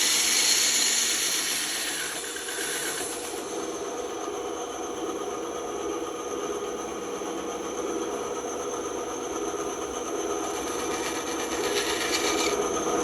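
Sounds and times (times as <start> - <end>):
blade cutting wood hiss: 0.0 - 3.4
band saw hum: 0.0 - 3.8, 10.4 - 13.0.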